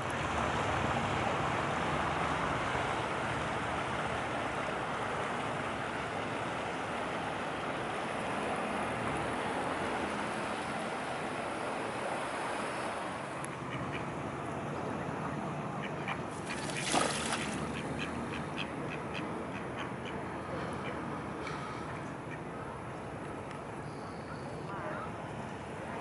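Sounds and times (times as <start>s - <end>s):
river water rushing: 0.0s - 13.4s, 16.3s - 18.3s
wind: 0.0s - 26.0s.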